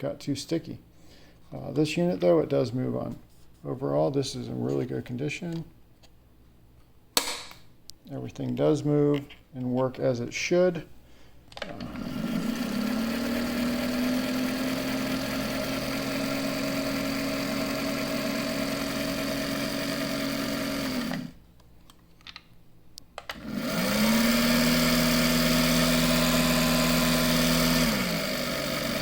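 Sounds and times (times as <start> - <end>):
sewing machine motor running: 11.8 - 21.4, 23.4 - 29.0.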